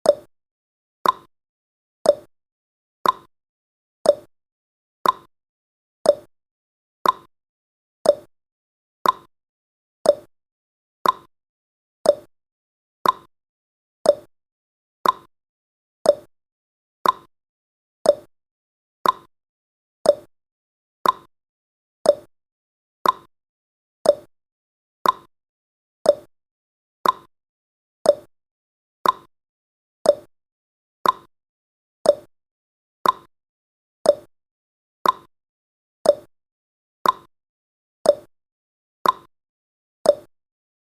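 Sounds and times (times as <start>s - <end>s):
timer ticking: 0.0s - 0.3s, 1.0s - 1.3s, 2.0s - 2.3s, 3.0s - 3.3s, 4.0s - 4.3s, 5.0s - 5.3s, 6.0s - 6.3s, 7.0s - 7.3s, 8.0s - 8.3s, 9.0s - 9.3s, 10.0s - 10.3s, 11.0s - 11.3s, 12.0s - 12.3s, 13.0s - 13.3s, 14.0s - 14.3s, 15.0s - 15.3s, 16.0s - 16.3s, 17.0s - 17.3s, 18.0s - 18.3s, 19.0s - 19.3s, 20.0s - 20.3s, 21.0s - 21.3s, 22.0s - 22.3s, 23.0s - 23.3s, 24.0s - 24.3s, 25.0s - 25.3s, 26.0s - 26.3s, 27.0s - 27.3s, 28.0s - 28.3s, 29.0s - 29.3s, 30.0s - 30.3s, 31.0s - 31.3s, 32.0s - 32.3s, 33.0s - 33.3s, 34.0s - 34.3s, 35.0s - 35.3s, 36.0s - 36.3s, 37.0s - 37.3s, 38.0s - 38.3s, 39.0s - 39.3s, 40.1s - 40.3s.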